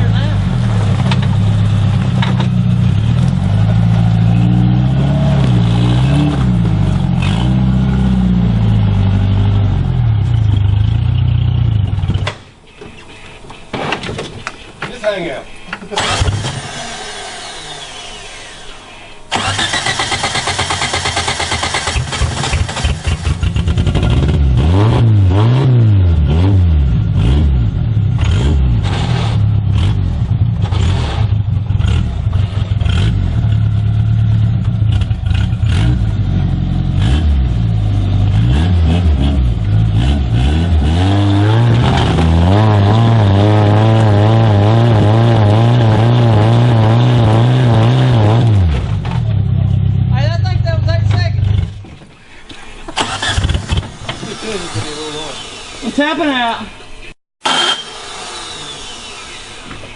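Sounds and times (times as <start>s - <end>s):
engine revving hard: 2.9s - 11.1s, 16.0s - 18.7s, 19.3s - 49.2s, 53.0s - 56.4s.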